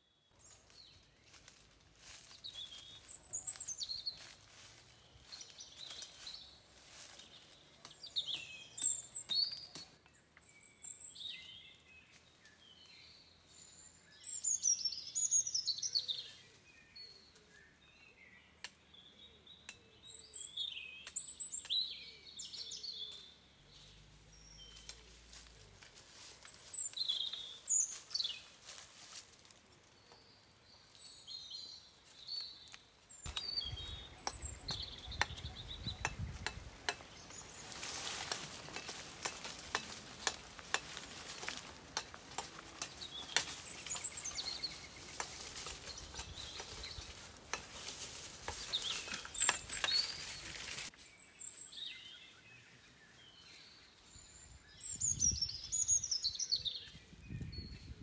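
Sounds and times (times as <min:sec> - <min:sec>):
forest birds chirping: 0:00.0 - 0:58.0
dry leaves crackling underfoot: 0:00.3 - 0:10.0, 0:21.7 - 0:51.1.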